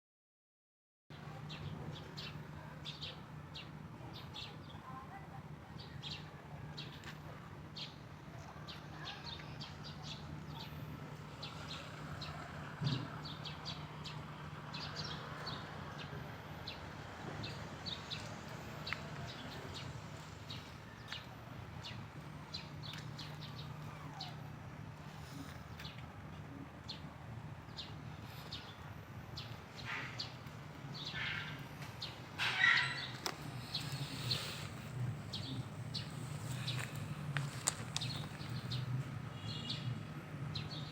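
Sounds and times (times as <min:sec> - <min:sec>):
small birds chirping: 0:01.2 - 0:40.9
steady low hum: 0:33.0 - 0:39.3.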